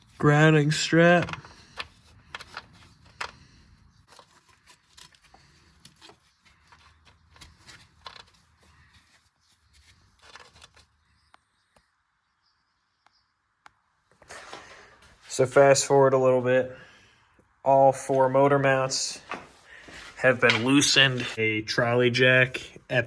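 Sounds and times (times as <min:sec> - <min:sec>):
scraping rustle: 0:00.0 - 0:11.0.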